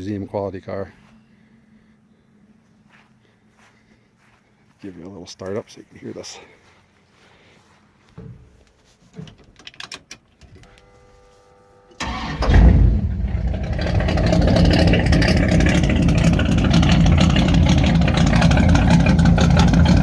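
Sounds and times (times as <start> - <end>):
car engine starting and idling: 12.0 - 20.0.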